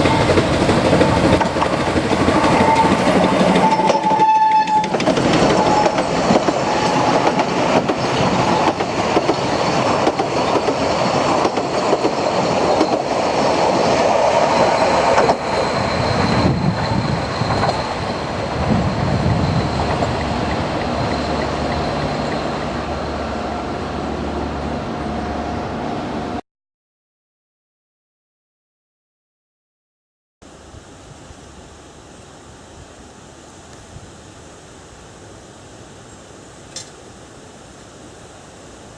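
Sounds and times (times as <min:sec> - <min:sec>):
carriages rolling on rails: 0:00.0 - 0:25.6
steam train passing: 0:00.0 - 0:26.4.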